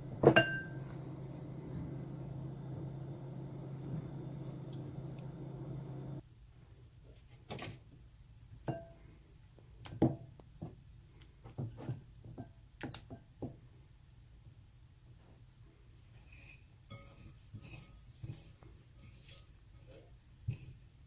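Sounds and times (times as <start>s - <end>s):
dishes and bowls set down: 0.2s - 1.2s.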